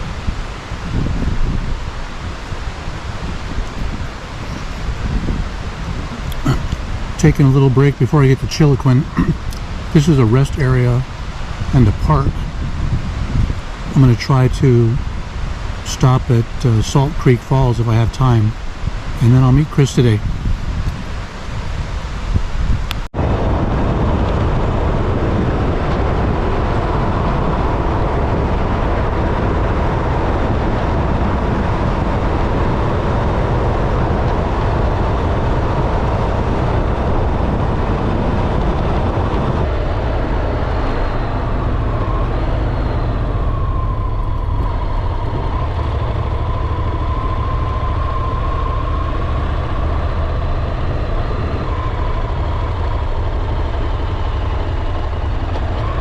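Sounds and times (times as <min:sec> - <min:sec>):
motorcycle engine rumble: 0:00.0 - 0:56.0
wind and road noise: 0:00.0 - 0:56.0
faint wavering whine: 0:22.8 - 0:56.0.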